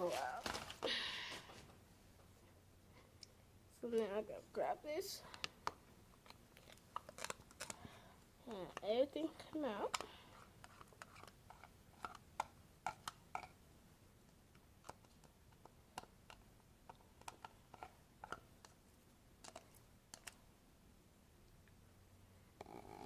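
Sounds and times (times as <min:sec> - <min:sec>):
small objects clicking and tapping: 0:09.9 - 0:13.6, 0:14.8 - 0:18.8, 0:19.4 - 0:20.4.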